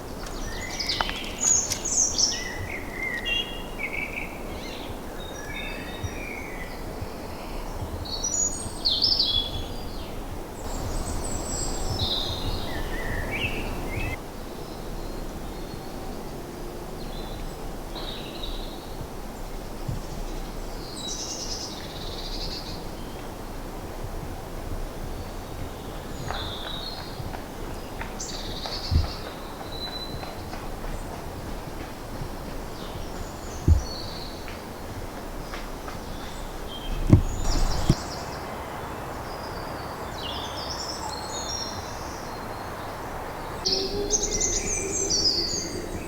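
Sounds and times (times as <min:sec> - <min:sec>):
songbirds chirping and warbling: 0:00.0 - 0:14.8, 0:24.9 - 0:46.0
low background rumble: 0:10.7 - 0:14.2.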